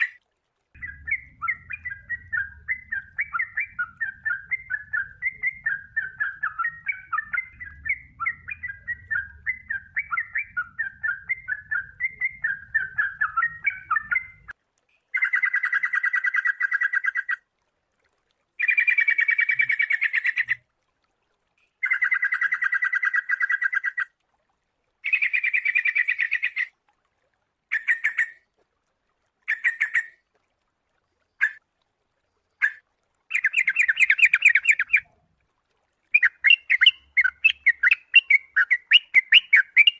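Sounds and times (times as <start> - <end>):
bulbul warbling song: 0.0 - 0.2, 0.8 - 17.4, 18.6 - 20.6, 21.8 - 24.1, 25.0 - 26.7, 27.7 - 28.4, 29.4 - 30.2, 31.2 - 31.6, 32.5 - 35.2, 36.1 - 39.9.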